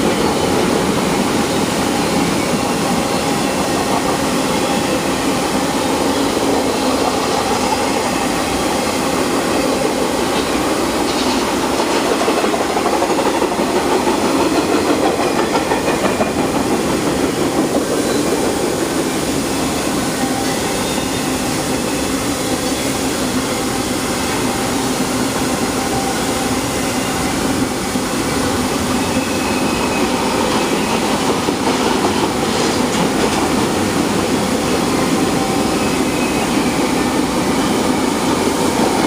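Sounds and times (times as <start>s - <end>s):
freight train wheels rumbling: 0.0s - 39.0s.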